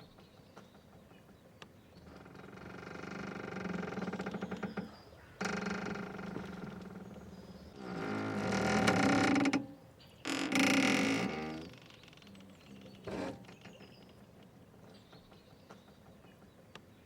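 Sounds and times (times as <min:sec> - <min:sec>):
mooring rope creaking: 0:02.0 - 0:14.2.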